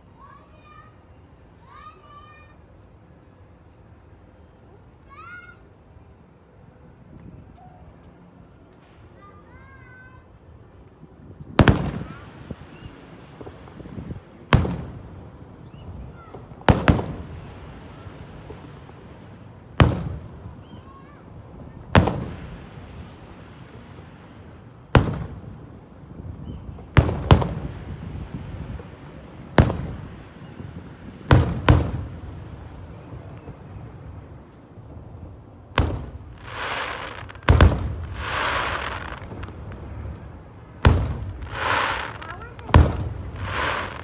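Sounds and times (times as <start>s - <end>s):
hissing crackle: 35.7s - 44.0s
fireworks shells bursting: 35.8s - 39.8s, 40.9s - 44.0s.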